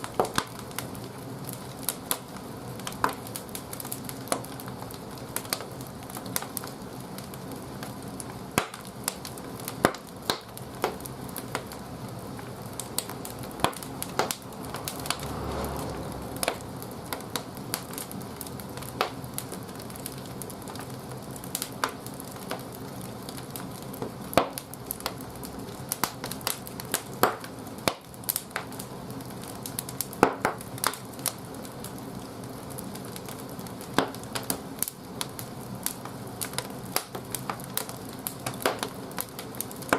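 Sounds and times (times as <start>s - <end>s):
wood crackling and popping: 0.0s - 39.9s
fire rushing: 9.2s - 23.8s.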